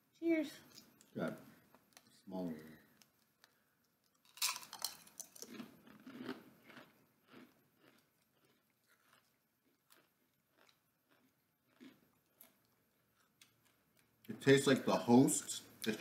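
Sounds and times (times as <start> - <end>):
crunching of crispy snacks: 1.9 - 14.3.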